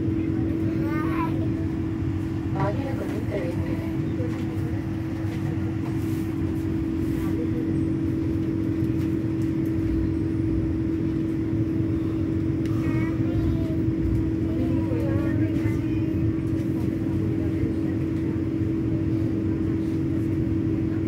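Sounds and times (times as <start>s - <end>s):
constant even-pitched hum: 0.0s - 21.0s
train low rumble: 0.0s - 21.0s.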